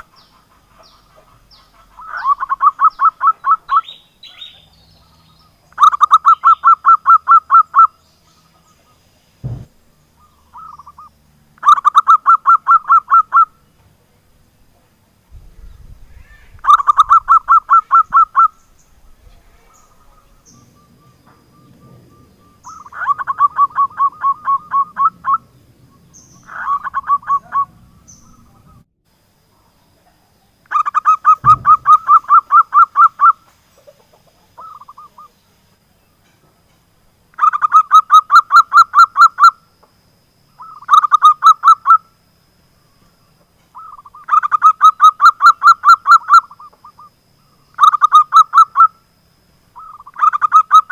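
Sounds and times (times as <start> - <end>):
dove cooing: 0.0 - 5.1, 15.5 - 28.8, 30.7 - 35.3
low thump: 9.4 - 9.8, 31.4 - 32.2.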